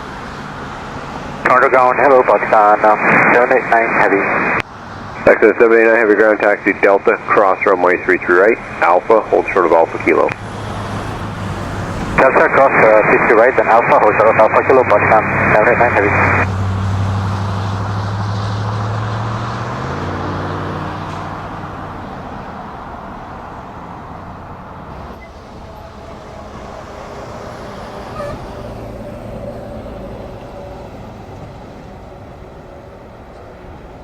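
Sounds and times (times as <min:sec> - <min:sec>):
jet engines rumbling: 0:00.0 - 0:34.0.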